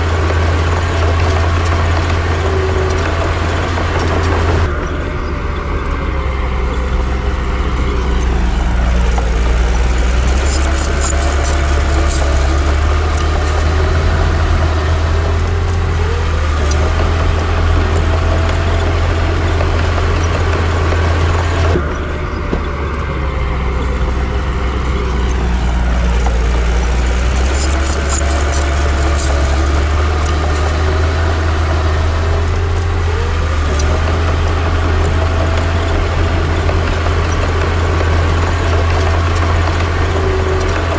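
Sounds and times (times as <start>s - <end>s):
bulldozer diesel engine running: 0.0s - 40.9s
light metal clinks: 9.1s - 14.0s, 26.1s - 31.0s.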